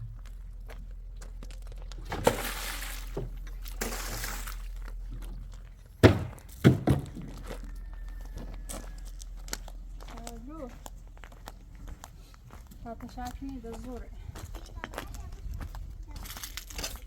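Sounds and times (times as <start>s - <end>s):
low steady hum: 0.0s - 14.7s
dull thuds and knocks: 6.0s - 7.6s.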